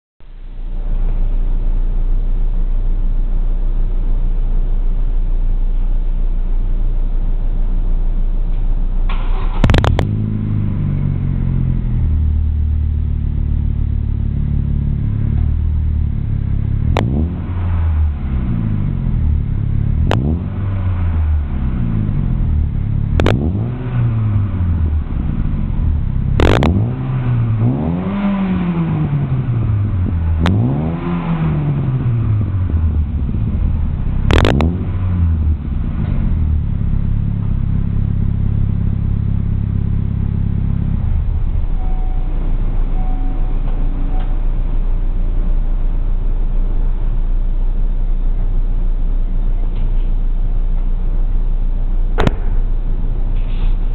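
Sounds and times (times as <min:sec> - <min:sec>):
car engine idling and revving: 0:00.2 - 0:53.9
sharp click: 0:52.2 - 0:52.6.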